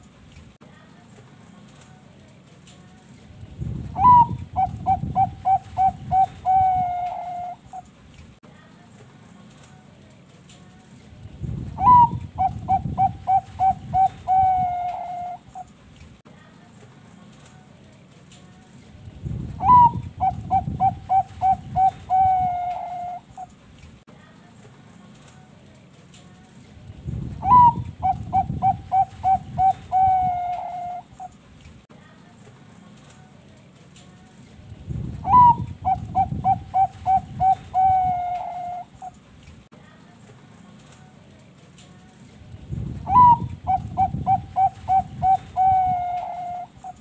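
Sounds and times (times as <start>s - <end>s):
dove cooing: 4.0s - 7.9s, 11.8s - 15.7s, 19.6s - 23.5s, 27.4s - 31.4s, 35.2s - 39.2s, 43.1s - 47.0s.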